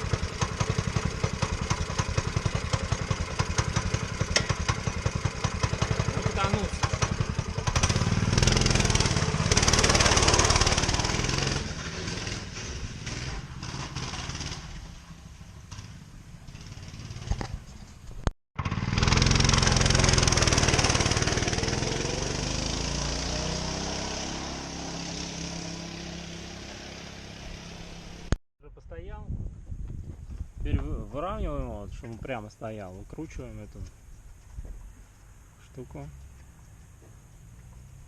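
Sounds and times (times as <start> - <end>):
motorcycle engine running: 0.0 - 17.8, 18.6 - 28.4.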